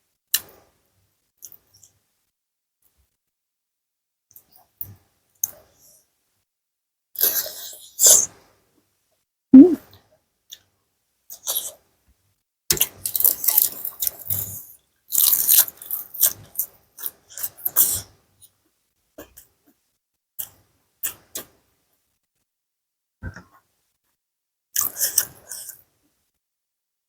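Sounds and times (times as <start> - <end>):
soft mouth clicks: 9.6 - 9.8
wet chewing and crunching: 15.1 - 17.1.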